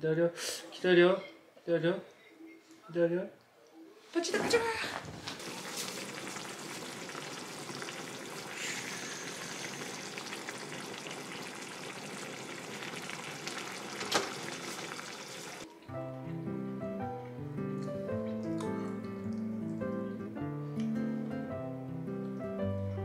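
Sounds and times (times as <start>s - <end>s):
food sizzling in a frying pan: 5.2s - 15.7s
background music: 15.6s - 23.0s.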